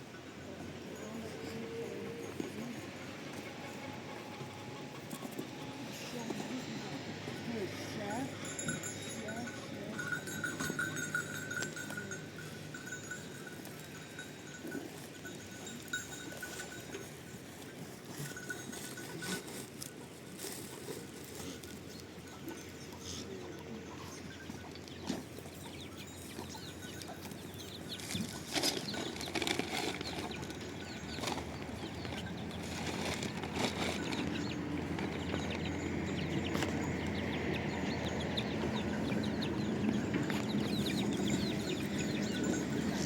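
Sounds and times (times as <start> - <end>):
livestock bells clinking: 0.0 - 43.0
birds chirping: 21.9 - 43.0.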